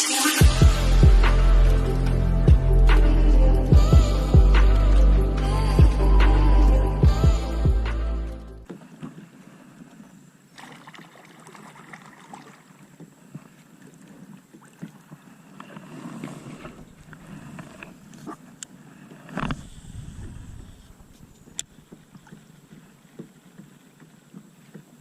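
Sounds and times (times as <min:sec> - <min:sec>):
heavy low bump: 0:00.4 - 0:08.2.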